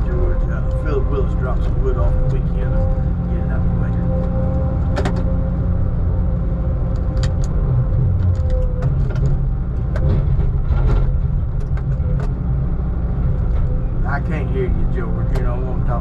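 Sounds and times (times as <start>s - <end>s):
diesel engine under load: 0.0s - 16.0s
steady whine: 0.0s - 16.0s
clanks and rattles: 4.8s - 5.3s, 6.9s - 12.5s.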